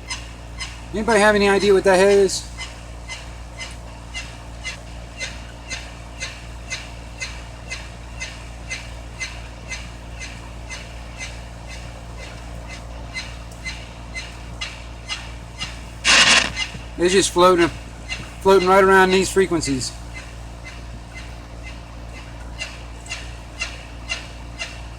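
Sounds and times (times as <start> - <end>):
chirping radio signal pulses: 9.8 - 22.4
radio hum and static: 16.0 - 17.8, 18.4 - 19.9.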